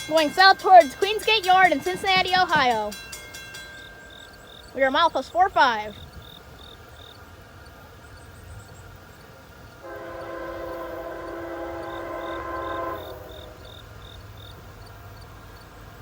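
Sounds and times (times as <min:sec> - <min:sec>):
crickets chirping: 0:00.0 - 0:16.0
low rumble of train: 0:00.0 - 0:16.0
locomotive air horn: 0:09.8 - 0:13.9.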